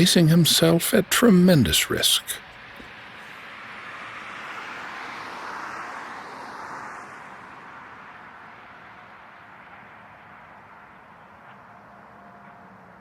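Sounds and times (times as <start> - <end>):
jet aircraft engines running: 0.0 - 2.4.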